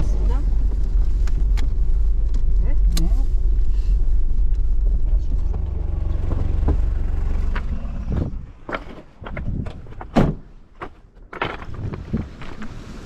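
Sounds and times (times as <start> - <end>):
car engine rumbling: 0.0 - 13.0
knocks and clatter: 5.3 - 12.7.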